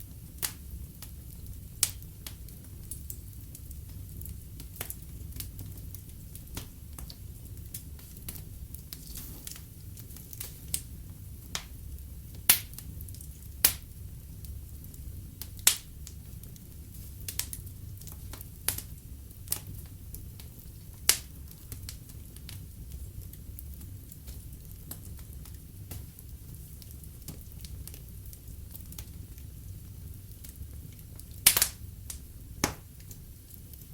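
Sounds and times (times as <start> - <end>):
low rumble of flames: 0.0 - 33.9
wood fire crackling: 0.0 - 33.9.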